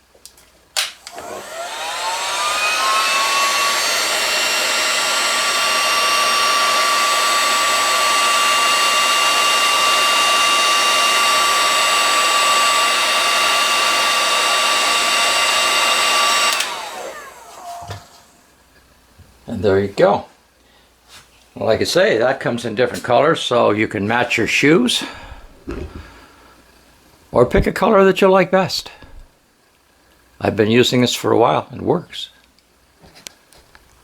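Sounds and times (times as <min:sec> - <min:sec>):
heat gun fan whine: 0:00.7 - 0:18.6.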